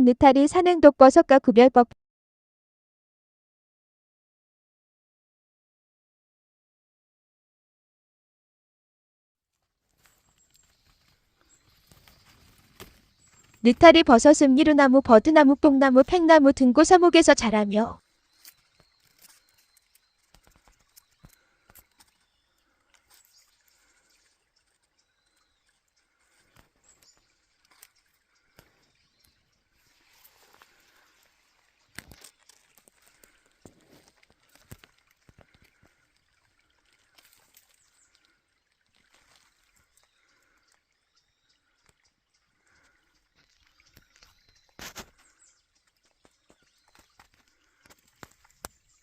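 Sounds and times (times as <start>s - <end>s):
faint ticks and rustles: 9.5s - 13.7s, 18.0s - 49.0s.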